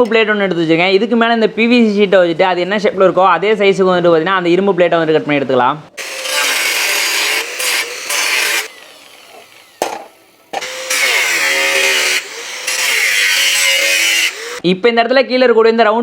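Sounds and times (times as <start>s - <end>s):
angle grinder cutting metal: 6.0s - 14.6s.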